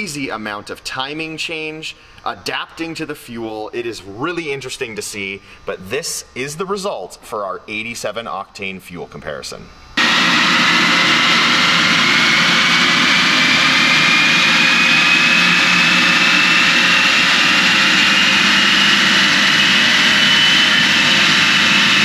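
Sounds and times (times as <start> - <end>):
high whine rising in pitch: 9.8 - 22.0
engine on dyno with rollers: 10.0 - 22.0.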